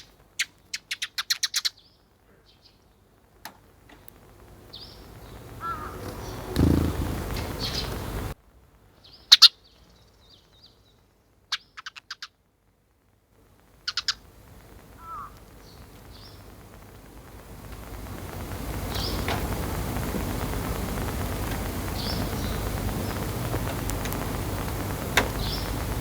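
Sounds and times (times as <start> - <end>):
sparrow chirping: 0.0 - 2.8, 5.6 - 8.3, 11.5 - 12.3, 13.9 - 14.2.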